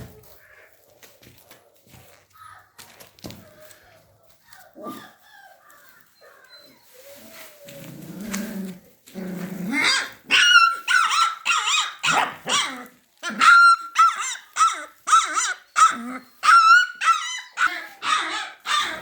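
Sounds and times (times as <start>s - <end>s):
puppy growling: 7.7s - 10.3s, 17.7s - 19.0s
puppy yapping: 9.8s - 19.0s.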